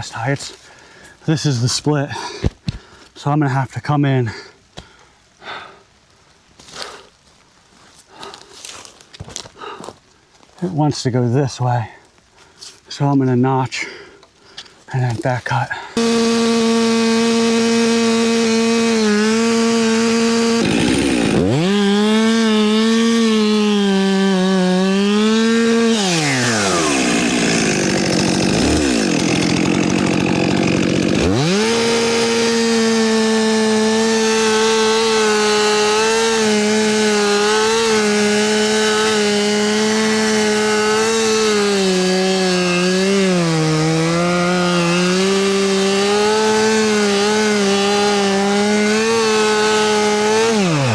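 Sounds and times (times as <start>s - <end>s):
chainsaw cutting tree trunk: 16.0s - 50.9s.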